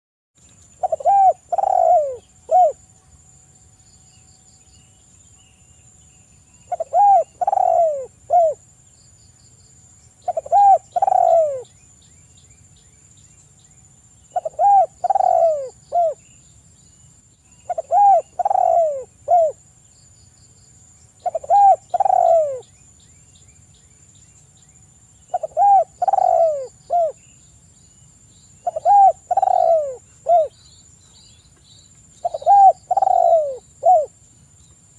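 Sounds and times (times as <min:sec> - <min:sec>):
small bird chirps: 0:00.4 - 0:03.2, 0:03.9 - 0:34.8
dove cooing: 0:00.8 - 0:02.8, 0:06.7 - 0:08.6, 0:10.2 - 0:11.7, 0:14.3 - 0:16.2, 0:17.7 - 0:19.6, 0:21.2 - 0:22.7, 0:25.3 - 0:27.2, 0:28.6 - 0:30.6, 0:32.2 - 0:34.1.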